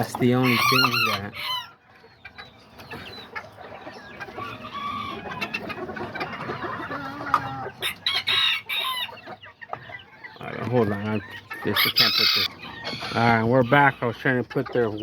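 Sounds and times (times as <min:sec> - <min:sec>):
chickens clucking: 0:00.0 - 0:15.0
rooster crowing: 0:00.4 - 0:01.8, 0:06.9 - 0:09.1.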